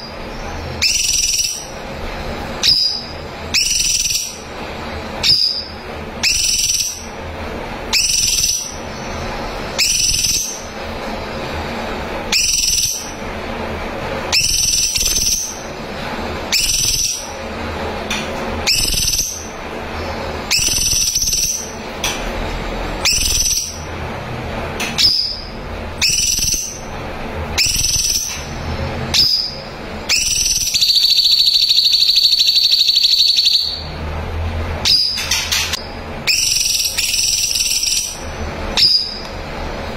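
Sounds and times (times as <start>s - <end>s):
bird trilling: 0.0s - 1.8s, 2.6s - 4.5s, 5.2s - 7.2s, 7.9s - 10.7s, 12.3s - 13.2s, 14.3s - 15.7s, 16.5s - 17.4s, 18.6s - 19.6s, 20.5s - 21.8s, 23.0s - 23.9s, 25.0s - 26.9s, 27.6s - 28.5s, 29.1s - 33.9s, 36.2s - 39.2s
songbird calling: 2.6s - 4.4s, 5.2s - 7.1s, 18.7s - 19.5s, 20.5s - 21.7s, 23.0s - 23.8s, 25.0s - 26.8s, 29.1s - 33.8s.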